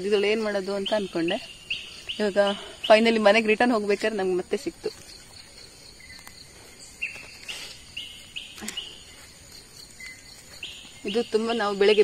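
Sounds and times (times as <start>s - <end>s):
birds whistling: 0.0s - 3.5s, 5.2s - 12.0s.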